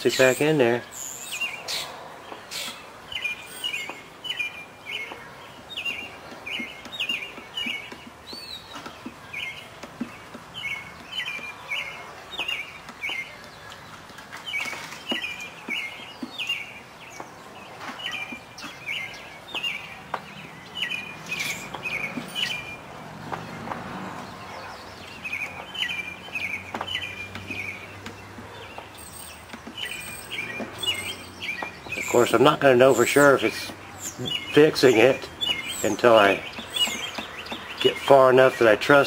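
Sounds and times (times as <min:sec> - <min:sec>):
bird chirping: 0:00.0 - 0:39.0
faint clicks and taps: 0:05.1 - 0:16.4, 0:19.5 - 0:20.6, 0:26.2 - 0:30.9, 0:35.2 - 0:37.9.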